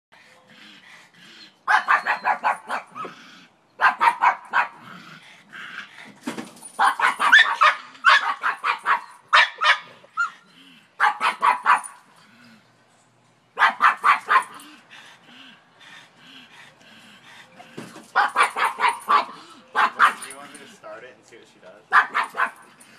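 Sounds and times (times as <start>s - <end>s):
dog barking rapidly: 1.7s - 3.1s, 3.8s - 4.8s, 6.8s - 10.3s, 11.0s - 12.0s, 13.6s - 14.6s, 18.1s - 20.3s, 21.9s - 22.7s.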